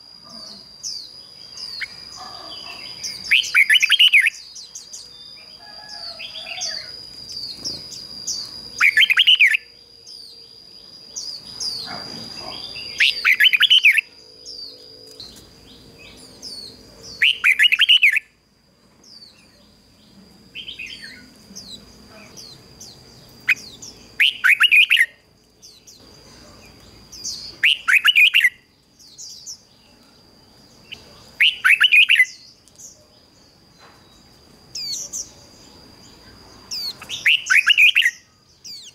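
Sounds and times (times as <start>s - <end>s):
bird song phrases: 0.0s - 18.4s, 19.0s - 38.9s
soft bird chirps: 19.0s - 38.9s.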